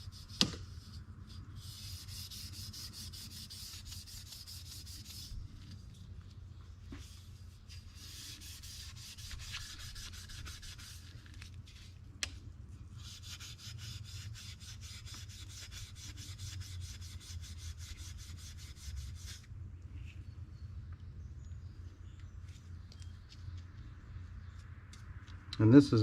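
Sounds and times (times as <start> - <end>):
polishing metal trim by hand: 1.6 - 5.4.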